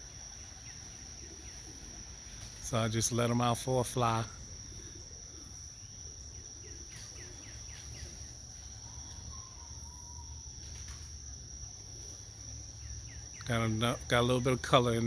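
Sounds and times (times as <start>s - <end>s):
insects chirping: 0.0s - 15.0s
bird chirping: 12.4s - 15.0s.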